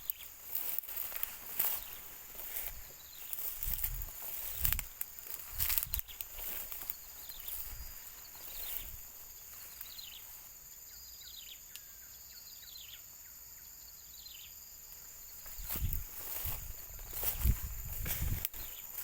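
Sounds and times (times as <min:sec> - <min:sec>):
rustling footsteps: 0:00.0 - 0:10.5, 0:15.3 - 0:19.0
small bird chirping: 0:00.0 - 0:14.6, 0:15.3 - 0:19.0
high insect drone: 0:00.0 - 0:19.0.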